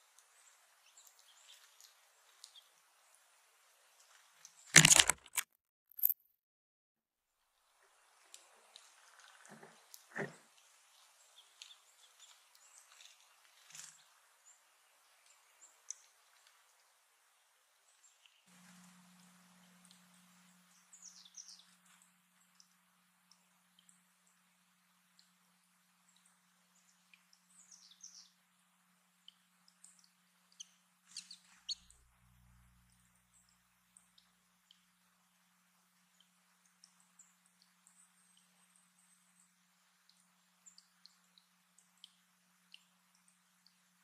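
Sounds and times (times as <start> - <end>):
small birds chirping: 0.0 - 4.7, 8.6 - 24.5, 26.0 - 28.4, 29.2 - 32.0
faint low hum: 7.6 - 44.0
light ticks: 15.2 - 16.9, 40.1 - 43.8.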